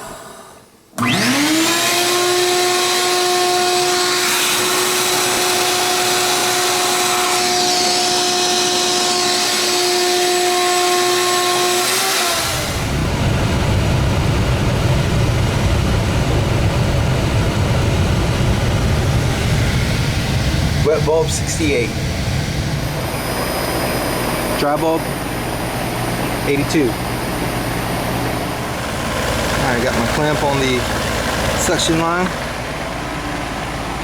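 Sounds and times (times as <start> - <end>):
shop vacuum motor whine: 0.0 - 34.0
steady low rumble: 12.9 - 34.0.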